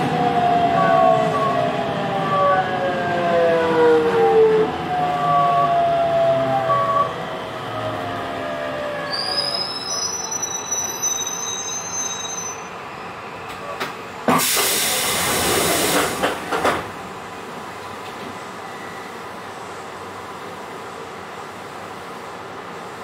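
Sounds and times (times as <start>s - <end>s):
low steady train running noise: 0.0s - 23.0s
wheels or brakes squealing: 9.0s - 12.8s
electric train inverter whine: 12.4s - 22.6s
loud hiss of air: 14.3s - 16.5s.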